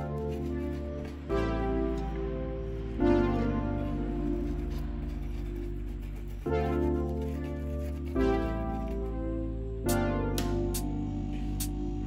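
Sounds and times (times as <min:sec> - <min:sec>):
sustained synth chords: 0:08.1 - 0:12.0.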